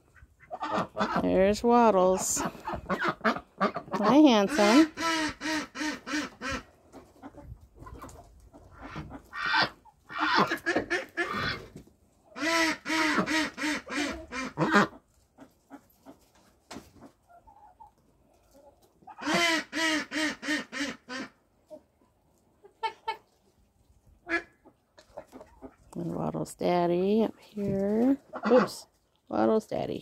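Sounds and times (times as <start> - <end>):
ducks quacking: 0.0 - 11.7, 12.3 - 16.2, 19.0 - 21.4, 24.2 - 25.8, 28.3 - 28.9.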